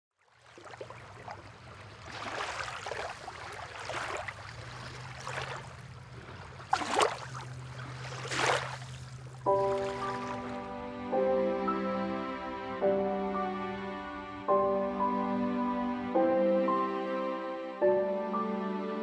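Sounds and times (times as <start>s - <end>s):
sea water splashing: 0.2s - 10.9s.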